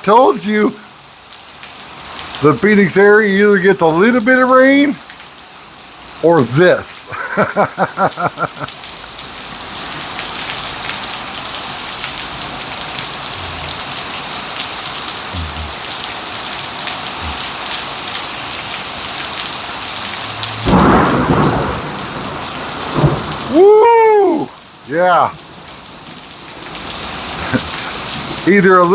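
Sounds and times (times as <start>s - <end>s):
heavy rain pouring: 0.0s - 28.9s
thunder burst: 20.2s - 23.6s.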